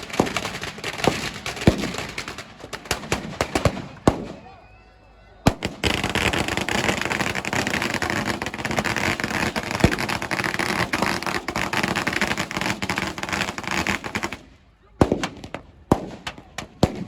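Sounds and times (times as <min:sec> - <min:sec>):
fireworks crackling: 0:00.0 - 0:04.5, 0:05.5 - 0:17.0
firework bang: 0:05.5 - 0:13.2.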